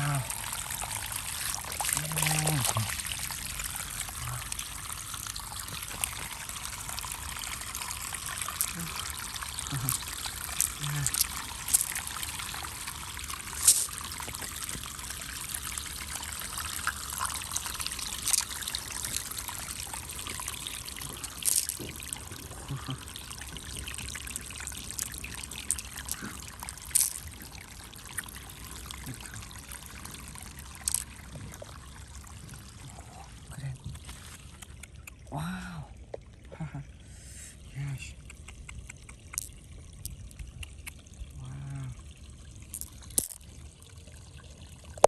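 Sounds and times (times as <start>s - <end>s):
water trickling and splashing: 0.0s - 45.0s
sharp clicks: 38.2s - 39.6s.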